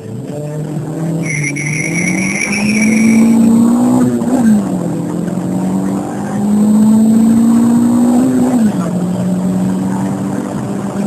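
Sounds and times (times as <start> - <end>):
car engine accelerating hard: 0.0 - 11.0
high steady whine: 1.2 - 3.5.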